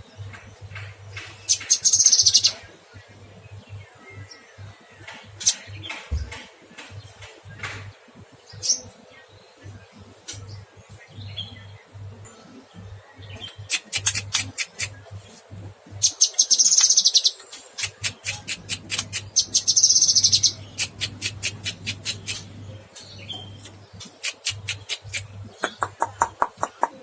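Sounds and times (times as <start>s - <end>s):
bird singing sharp clicking notes: 0.3s - 2.6s, 13.4s - 15.1s, 16.1s - 27.0s
buzzy bird trill: 16.0s - 26.9s.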